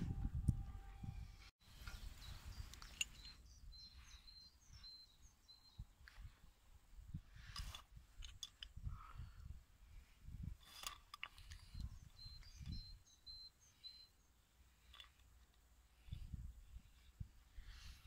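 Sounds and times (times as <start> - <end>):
low rumble on microphone: 0.0 - 2.7
small bird chirping: 1.6 - 6.4, 11.4 - 15.1.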